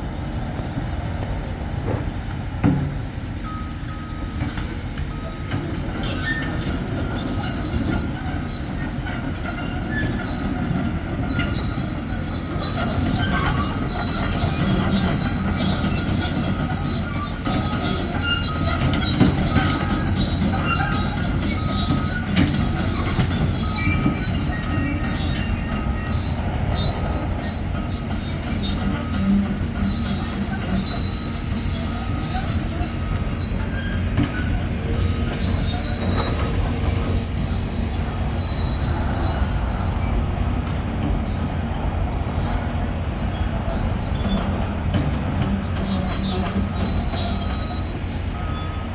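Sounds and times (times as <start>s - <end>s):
steel tracks squealing: 0.0s - 48.9s
low engine rumble: 18.6s - 41.9s.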